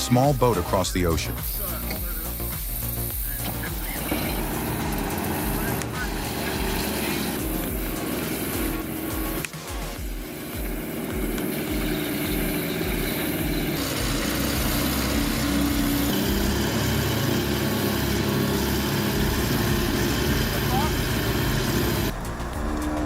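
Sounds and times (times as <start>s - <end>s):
off-road vehicle engine running: 0.0s - 23.0s.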